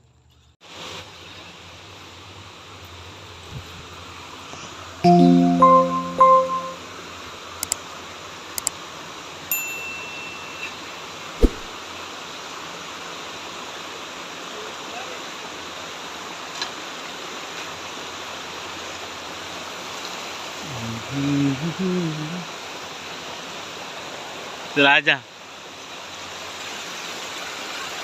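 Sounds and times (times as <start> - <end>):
held chord of tones: 5.0 - 7.0
low thump: 11.4 - 11.7.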